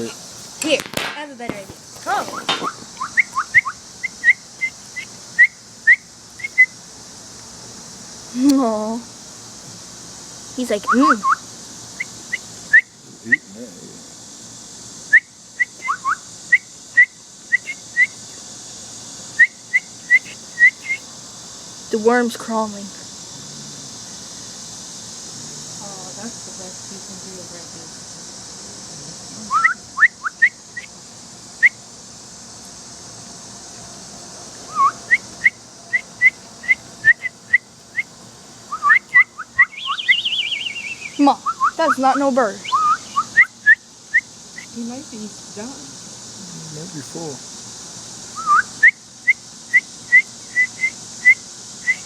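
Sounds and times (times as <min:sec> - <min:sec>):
person whistling bird-like chirps: 0:15.1 - 0:18.2, 0:19.4 - 0:21.0, 0:29.5 - 0:30.9, 0:38.7 - 0:41.8, 0:42.6 - 0:44.2, 0:48.4 - 0:52.0.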